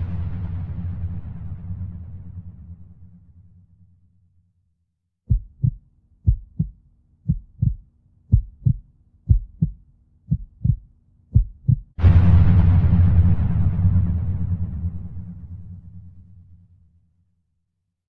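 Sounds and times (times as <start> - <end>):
faint low drone: 0.0 - 4.6, 12.0 - 16.9
heartbeat thumps: 5.3 - 12.0.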